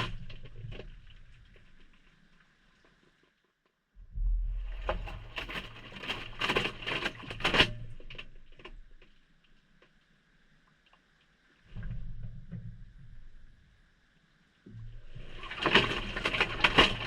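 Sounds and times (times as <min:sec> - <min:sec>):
wet laundry tumbling: 0:04.8 - 0:07.5, 0:15.3 - 0:17.0
water sloshing and pattering: 0:04.8 - 0:08.3, 0:15.0 - 0:17.0.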